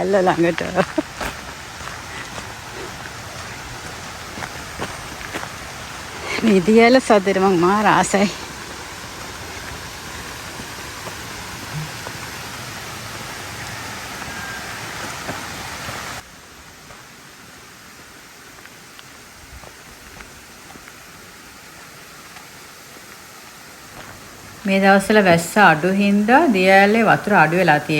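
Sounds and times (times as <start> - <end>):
small waterfall splashing: 0.0 - 27.9.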